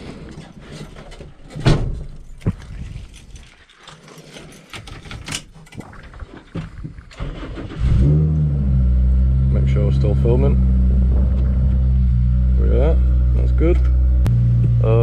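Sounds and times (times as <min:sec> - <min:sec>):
clicks and rattles of handling: 0:00.0 - 0:07.1
car engine starting: 0:07.1 - 0:15.0.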